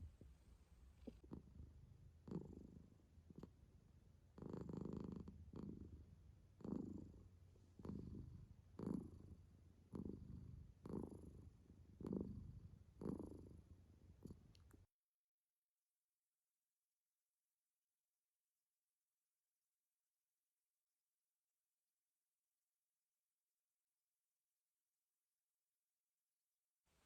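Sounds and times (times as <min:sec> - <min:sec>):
cat purring: 0:00.0 - 0:14.8.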